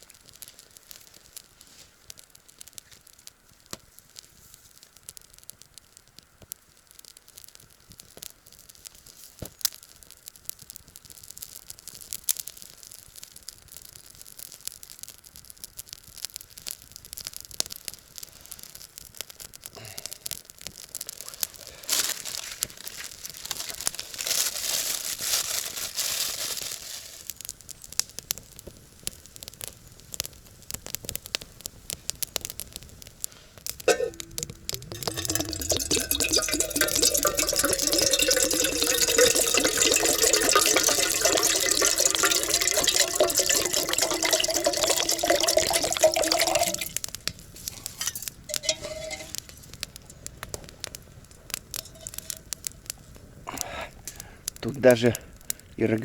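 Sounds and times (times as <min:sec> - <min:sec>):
twigs and leaves crackling: 0:20.6 - 0:27.6, 0:46.8 - 0:55.8
twigs snapping: 0:21.1 - 0:27.1.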